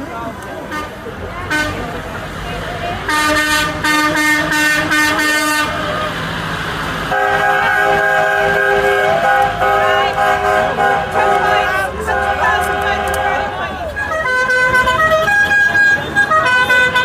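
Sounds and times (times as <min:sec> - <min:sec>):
multi-tone air horn blast: 0:00.7 - 0:01.9, 0:03.1 - 0:06.1, 0:07.1 - 0:17.0
vehicle horn toots: 0:03.1 - 0:06.1, 0:07.1 - 0:17.0.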